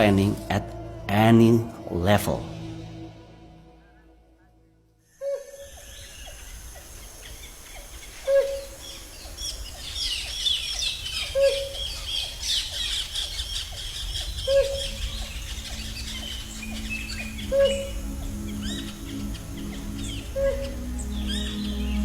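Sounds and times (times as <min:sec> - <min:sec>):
chorus of high bird chirps: 0:05.2 - 0:22.0.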